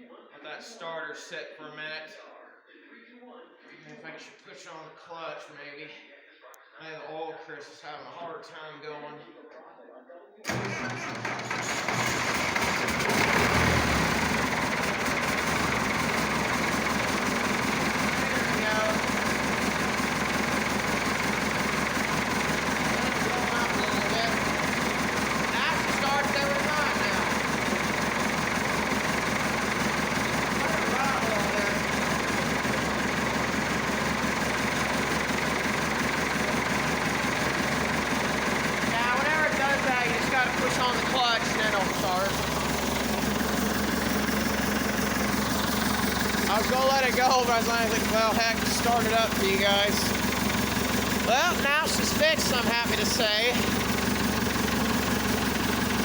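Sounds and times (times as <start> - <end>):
diesel tractor engine idling: 10.5 - 56.0.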